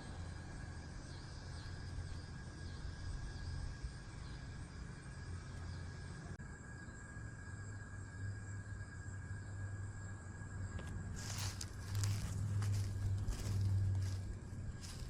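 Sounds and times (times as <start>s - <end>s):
steady low rumble: 10.4s - 15.0s.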